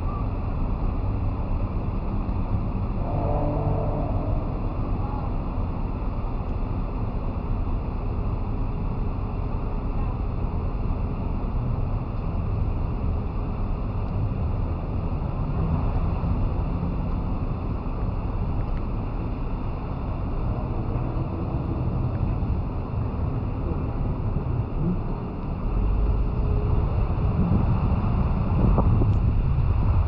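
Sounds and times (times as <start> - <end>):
wind and road noise: 0.0 - 30.0
wind buffeting microphone: 19.2 - 30.0.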